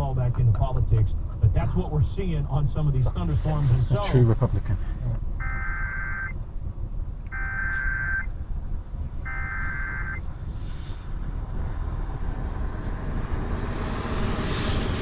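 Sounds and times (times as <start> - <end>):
warbling data tone bursts: 5.4 - 6.4, 7.3 - 8.3, 9.3 - 10.2.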